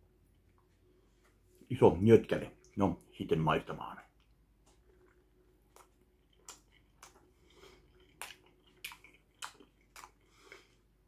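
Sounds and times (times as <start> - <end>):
mouth clicks while chewing: 4.2 - 10.7.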